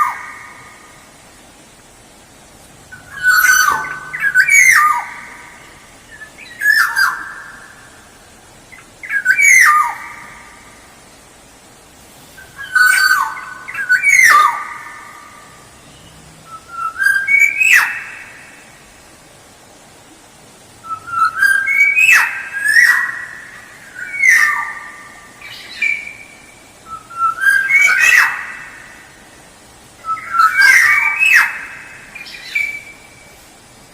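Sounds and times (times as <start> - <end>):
bird singing fluty whistles: 3.0 - 5.4.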